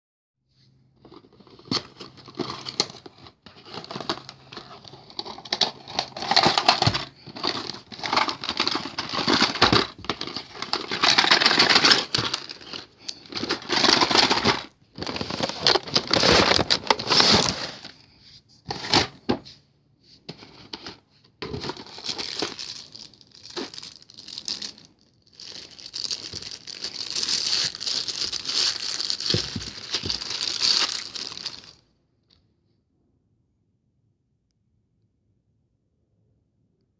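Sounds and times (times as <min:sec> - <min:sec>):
packaging crinkling and tearing: 0:01.0 - 0:17.9, 0:20.6 - 0:31.8.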